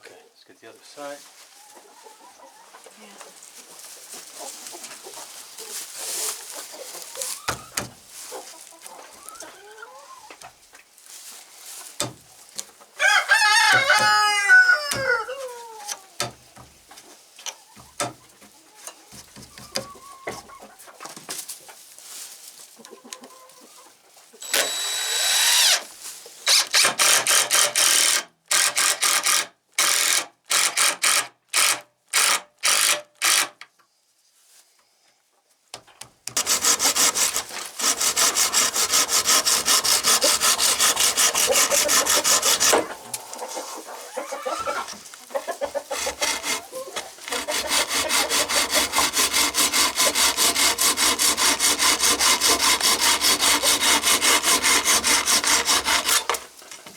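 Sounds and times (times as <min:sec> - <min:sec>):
hand saw cutting wood: 0:07.2 - 0:08.0, 0:13.0 - 0:16.8, 0:19.1 - 0:20.8, 0:24.4 - 0:33.6, 0:36.3 - 0:56.9.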